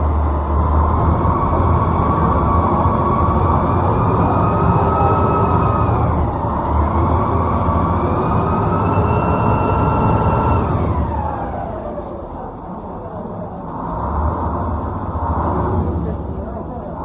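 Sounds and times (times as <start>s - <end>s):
steady low rumble: 0.0s - 17.0s
siren-like wailing tone: 0.9s - 12.0s.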